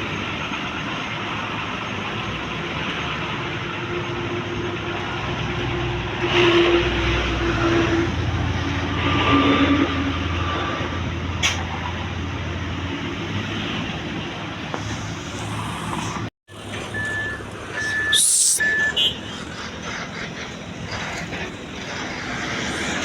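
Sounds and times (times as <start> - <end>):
short high beeps: 17.0 - 19.0
air brakes hissing: 17.8 - 19.6.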